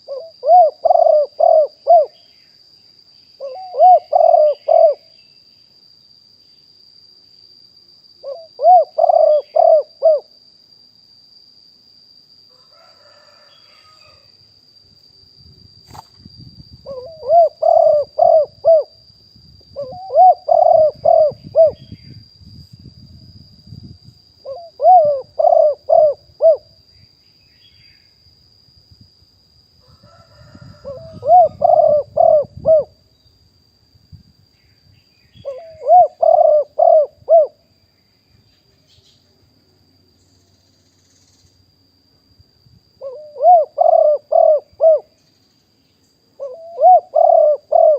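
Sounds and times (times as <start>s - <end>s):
dove cooing: 0.0s - 2.2s, 3.4s - 5.1s, 8.2s - 10.3s, 16.8s - 19.0s, 19.8s - 21.9s, 24.4s - 26.7s, 30.4s - 33.0s, 35.4s - 37.6s, 43.0s - 45.2s, 46.4s - 47.9s.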